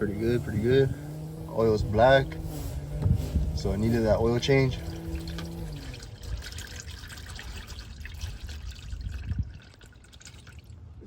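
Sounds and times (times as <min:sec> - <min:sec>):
oil pouring into bucket: 0:03.0 - 0:11.0.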